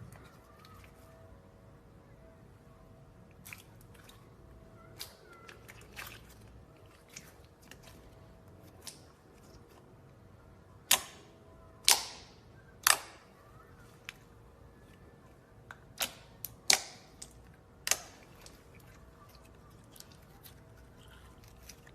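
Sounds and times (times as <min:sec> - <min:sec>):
slime crackling: 0:03.3 - 0:11.2, 0:15.8 - 0:21.9.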